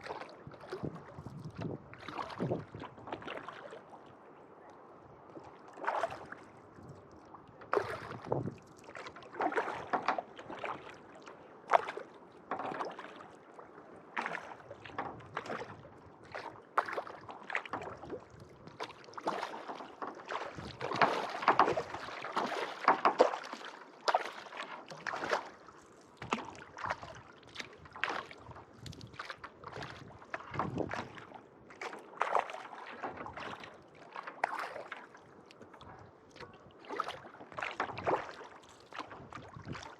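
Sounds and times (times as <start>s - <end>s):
kayak paddle splashing in water: 0.0s - 4.2s, 5.3s - 6.7s, 7.6s - 39.9s.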